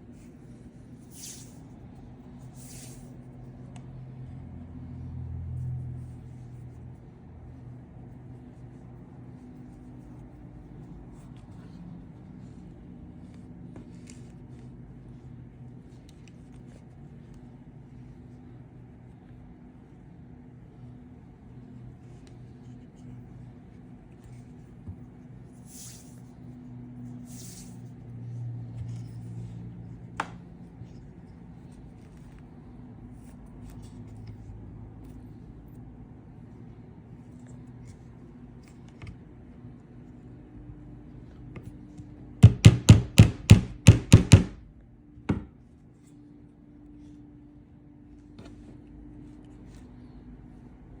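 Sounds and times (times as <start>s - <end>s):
low steady hum: 0.0s - 51.0s
sharp knocks: 42.4s - 44.6s.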